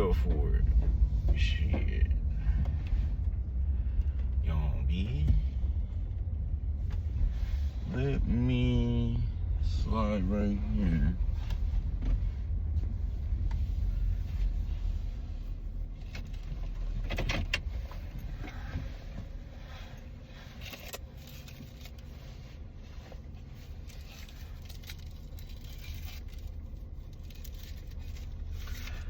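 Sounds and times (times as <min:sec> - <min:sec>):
car engine rumble: 0:00.0 - 0:29.0
rustles of things handled: 0:10.7 - 0:29.0.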